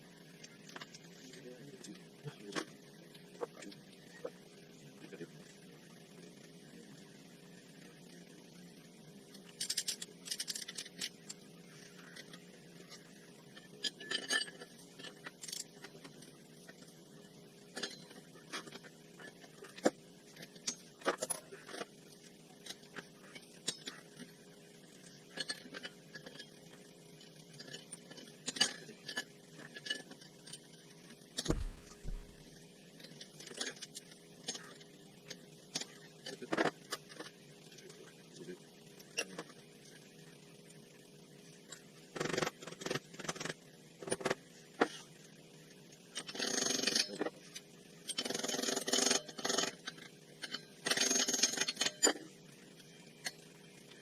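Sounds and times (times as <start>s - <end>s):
dull thump: 31.4s - 32.4s.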